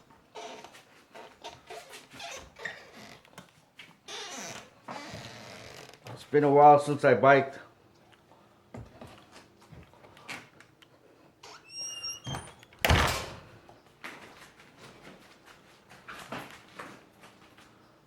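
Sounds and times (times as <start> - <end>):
brief high squeak: 11.5 - 12.6.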